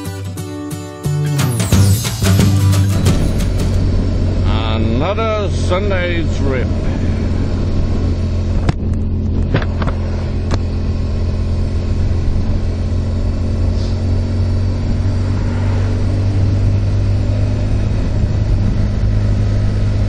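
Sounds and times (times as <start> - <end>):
motorcycle engine running steadily: 2.2 - 20.0.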